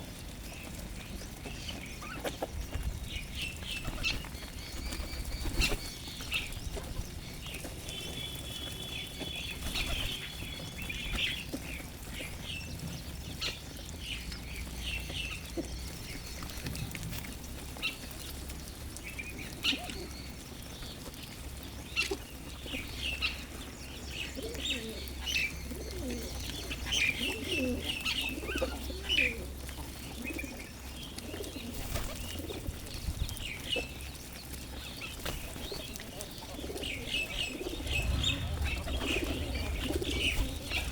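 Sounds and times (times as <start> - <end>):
birds chirping: 0.5 - 16.8, 34.7 - 40.9
wings flapping: 3.8 - 6.9, 36.6 - 40.9
pigeons cooing: 24.2 - 33.0, 35.1 - 40.9.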